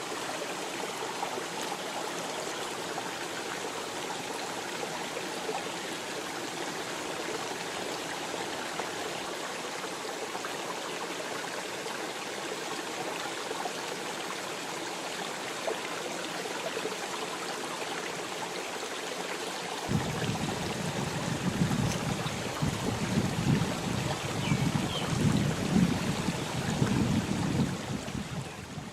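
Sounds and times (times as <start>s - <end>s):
flowing water rushing: 0.0s - 28.9s
wind buffeting microphone: 19.9s - 28.9s.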